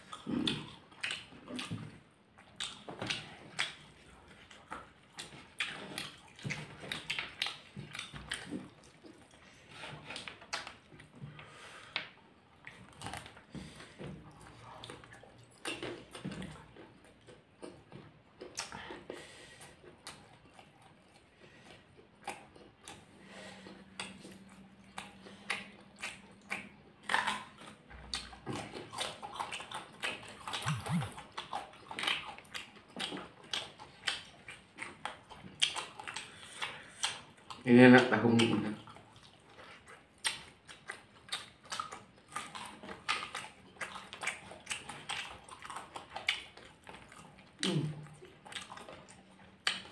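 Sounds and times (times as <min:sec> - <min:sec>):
people chewing: 0:00.0 - 0:49.9
wet mouth clicks and smacks: 0:00.1 - 0:09.4, 0:10.0 - 0:11.2, 0:22.2 - 0:37.6, 0:38.3 - 0:49.9
low hum: 0:30.6 - 0:31.2.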